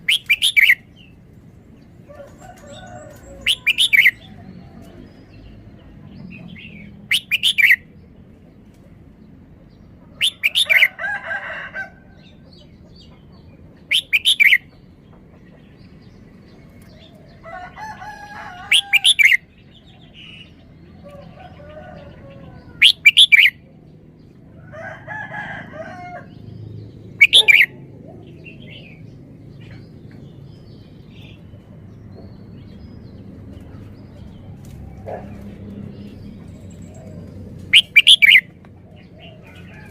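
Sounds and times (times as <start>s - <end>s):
soft bird chattering calls: 0.0s - 1.1s, 3.4s - 4.4s, 6.3s - 7.9s, 10.1s - 10.9s, 13.8s - 14.8s, 22.8s - 23.6s, 27.2s - 29.0s, 37.7s - 39.4s
bird singing short phrases: 27.2s - 27.7s.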